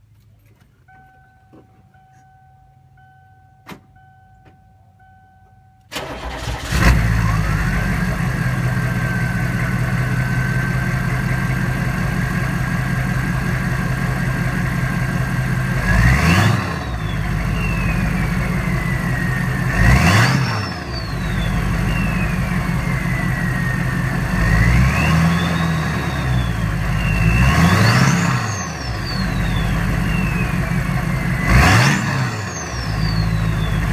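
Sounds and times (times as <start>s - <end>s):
faint warning tone: 0.7s - 5.9s
diesel engine starting and idling: 5.9s - 33.9s
engine revving: 6.0s - 33.9s
turbo whistle: 16.9s - 19.2s, 20.1s - 23.8s, 25.0s - 30.8s, 31.4s - 33.9s.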